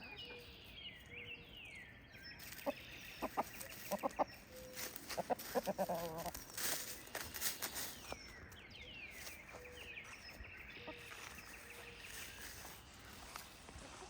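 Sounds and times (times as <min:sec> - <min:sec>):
hens clucking softly: 0:05.1 - 0:06.4.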